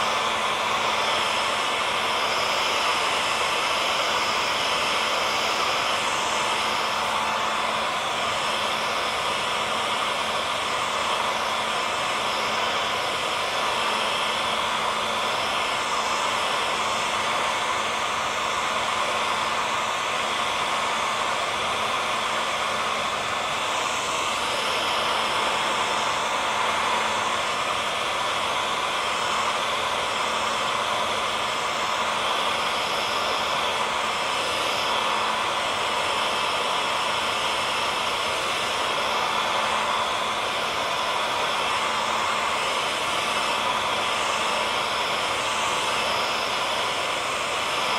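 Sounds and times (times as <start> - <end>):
hair dryer running: 0.0 - 47.9.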